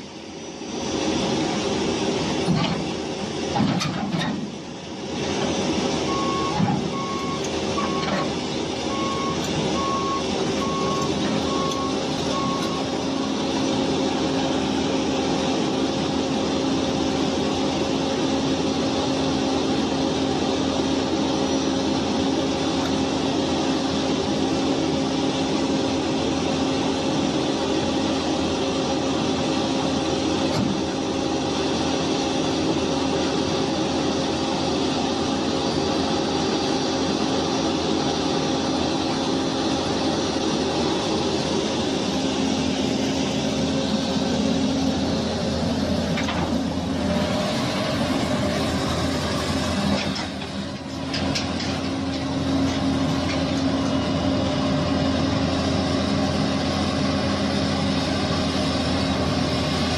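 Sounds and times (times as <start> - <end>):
heavy vehicle engine drone: 0.0 - 59.9
reversing beeper: 6.0 - 8.3, 8.9 - 13.0.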